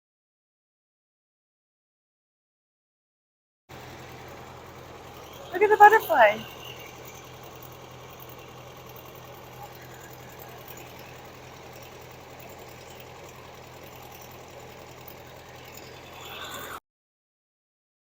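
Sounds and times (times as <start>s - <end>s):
drilling rig engine humming: 3.7s - 16.8s.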